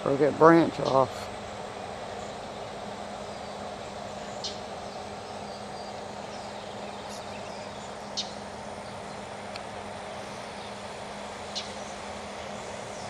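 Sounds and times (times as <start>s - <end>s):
outdoor background noise: 0.0s - 13.0s
small bird chirps: 3.3s - 9.2s.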